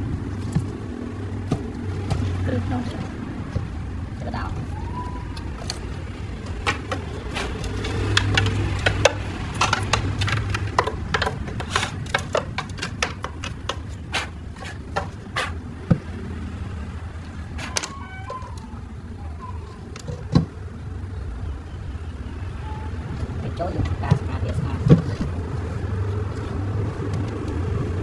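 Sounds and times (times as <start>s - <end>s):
steady low hum: 0.0s - 17.7s
sharp clicks and light knocks: 0.1s - 16.2s, 19.7s - 20.6s, 23.1s - 28.0s.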